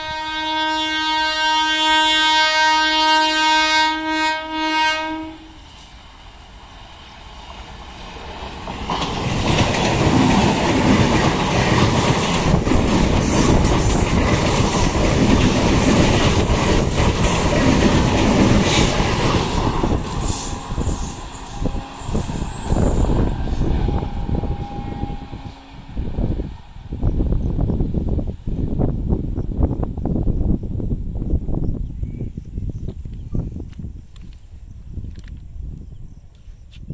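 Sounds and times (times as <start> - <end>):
train horn: 0.0 - 5.8, 19.8 - 26.4
train wheels on rails: 5.4 - 30.5, 32.4 - 36.9.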